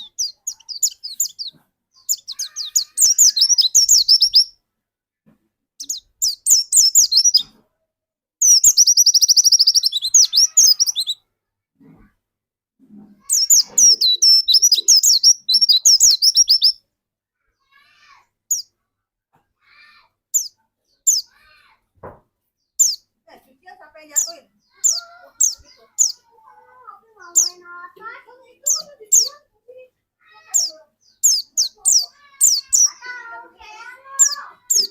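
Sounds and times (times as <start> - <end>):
bird high chirping twitter: 0.0 - 4.6, 5.8 - 7.5, 8.4 - 11.2, 13.2 - 16.8, 18.5 - 18.7, 20.3 - 21.4, 22.8 - 23.1, 24.1 - 27.8, 28.4 - 29.4, 30.3 - 34.9.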